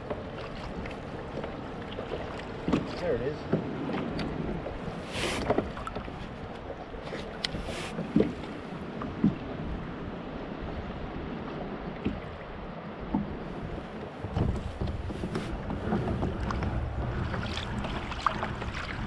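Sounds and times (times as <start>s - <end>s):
wind and water wash: 0.0s - 19.0s.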